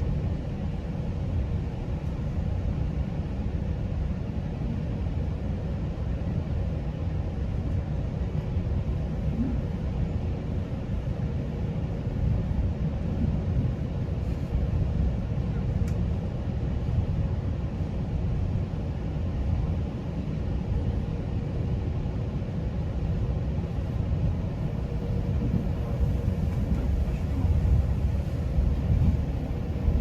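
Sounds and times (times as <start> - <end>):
train wheels rumbling on track: 23.7 - 30.0.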